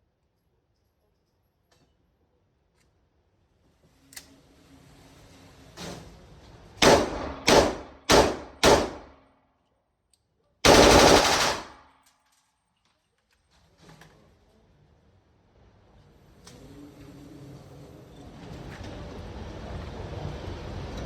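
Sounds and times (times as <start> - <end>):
gunshots: 6.8 - 9.2, 10.7 - 11.9.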